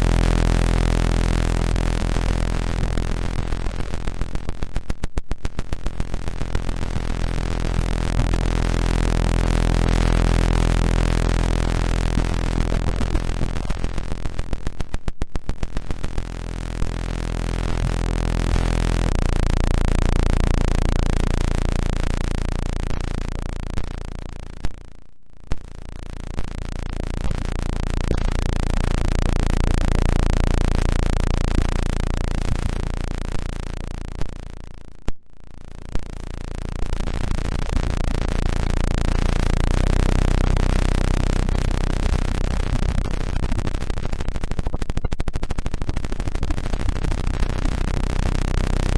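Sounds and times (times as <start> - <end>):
low electronic hums: 0.0 - 48.9
scattered clicks: 27.2 - 28.6, 42.1 - 47.8.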